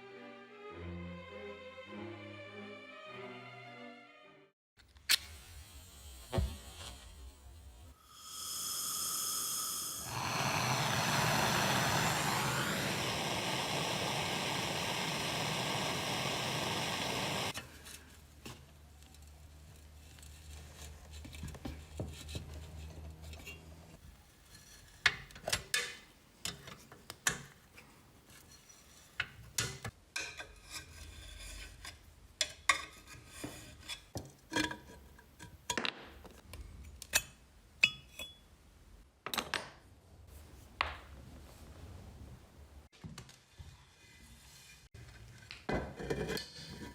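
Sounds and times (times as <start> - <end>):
power tool running rough: 9.6 - 17.6
low hum: 10.1 - 17.5.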